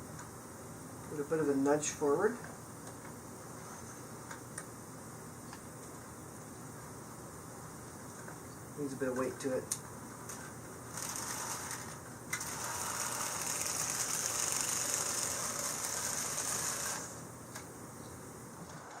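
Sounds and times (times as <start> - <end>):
toy train motor whirring and clattering: 10.9 - 17.2.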